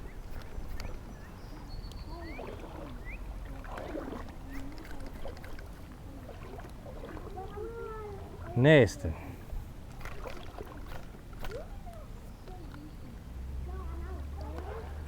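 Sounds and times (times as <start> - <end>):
water splashing around wading legs: 0.0 - 8.6, 9.8 - 12.0, 14.2 - 15.0.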